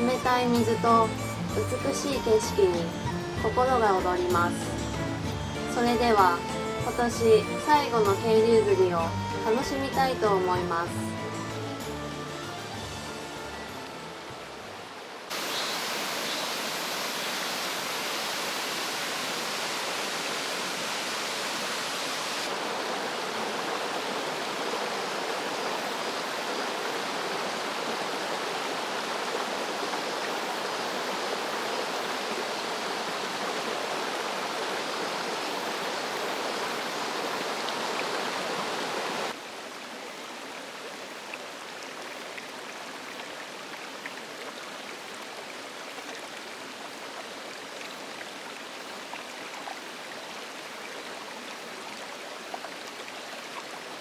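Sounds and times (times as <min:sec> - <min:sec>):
water rushing over rocks: 0:13.9 - 0:54.0.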